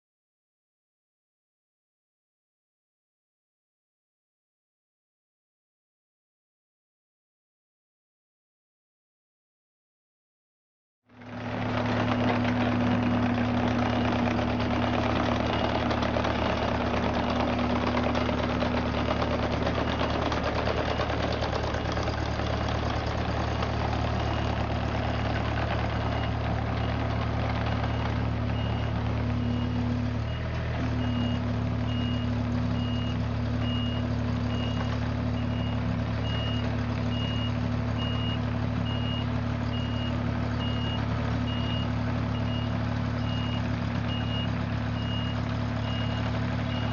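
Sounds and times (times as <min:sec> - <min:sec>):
engine running steadily: 0:11.1 - 0:46.9.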